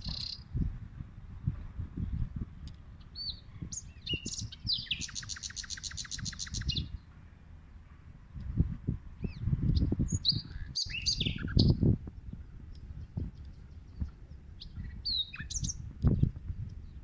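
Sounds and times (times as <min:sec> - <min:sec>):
rapid bird trill: 0:00.0 - 0:00.5, 0:03.0 - 0:07.0, 0:09.2 - 0:11.8, 0:13.4 - 0:15.8
small birds chirping: 0:00.0 - 0:00.8, 0:02.0 - 0:07.2, 0:09.2 - 0:17.0.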